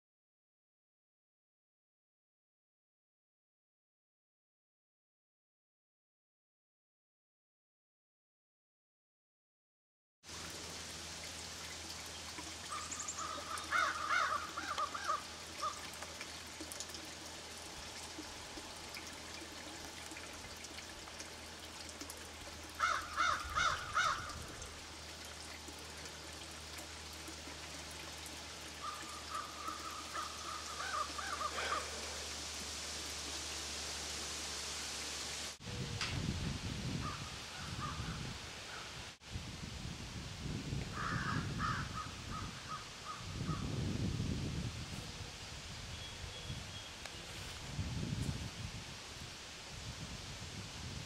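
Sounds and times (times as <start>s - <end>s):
steady hiss: 10.3s - 41.1s
bird calling: 12.7s - 15.9s, 22.8s - 24.4s, 28.8s - 32.2s.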